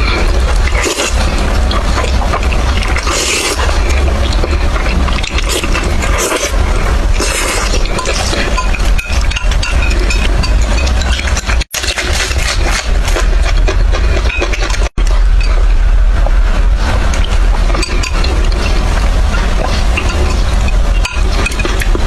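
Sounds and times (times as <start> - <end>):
slurping noodles: 0.0 - 15.7
low hum: 0.0 - 22.0.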